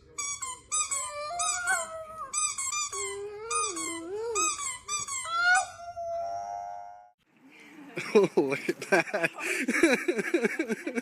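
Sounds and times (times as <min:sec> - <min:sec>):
dogs whining and howling: 0:00.9 - 0:07.2.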